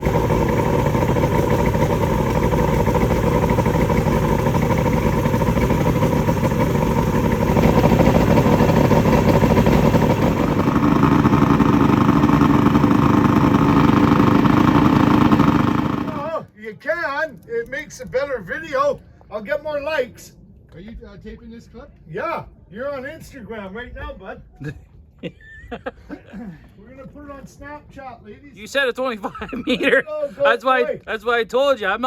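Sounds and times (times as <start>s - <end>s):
boat motor running: 0.0s - 16.4s.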